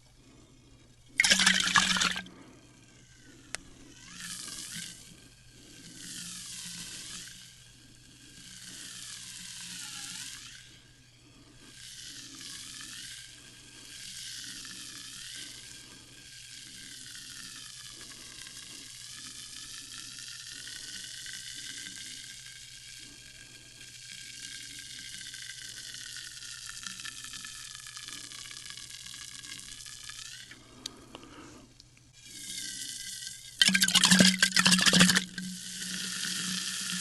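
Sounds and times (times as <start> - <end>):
sparkling water fizzing: 1.2 - 2.2, 33.6 - 35.4.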